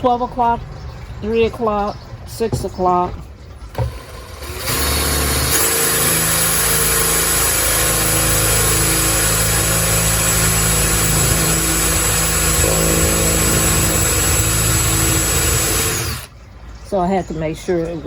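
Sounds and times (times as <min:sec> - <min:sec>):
power drill boring into pot: 0:03.8 - 0:16.3.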